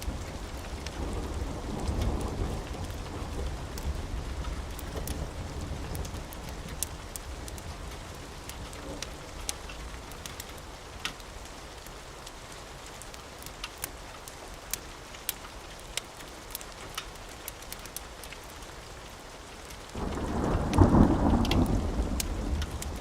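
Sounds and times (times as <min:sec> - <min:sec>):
rain falling: 0:00.0 - 0:23.0
sharp crackles: 0:13.0 - 0:23.0
thunder rolling: 0:20.0 - 0:23.0.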